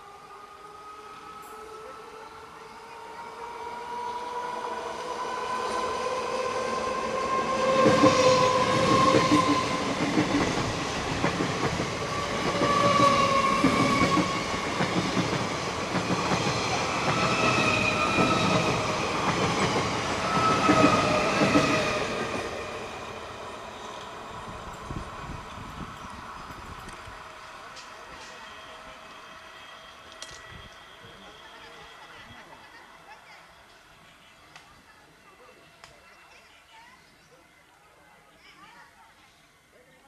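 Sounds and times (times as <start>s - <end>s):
whining train tone: 0.0s - 32.8s
train wheels clattering on rails: 7.5s - 22.4s.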